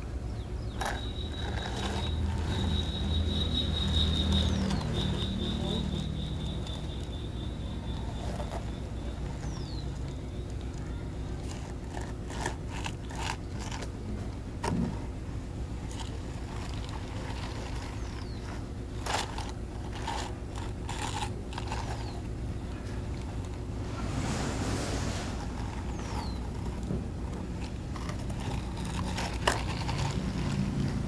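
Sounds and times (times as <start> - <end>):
scrapes crunches and clicks: 7.8 - 15.2, 15.8 - 31.0.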